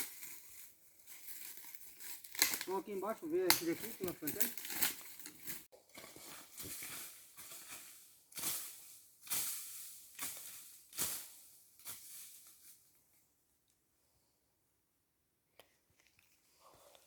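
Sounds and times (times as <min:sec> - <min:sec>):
dry vegetation crunching: 0:00.0 - 0:12.7.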